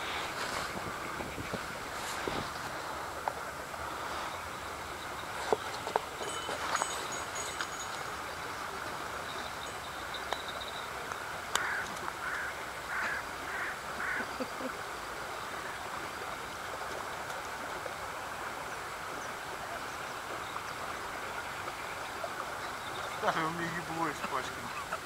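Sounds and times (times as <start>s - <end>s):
outdoor background hiss: 0.0s - 25.0s
bird giving rough calls: 11.6s - 14.4s.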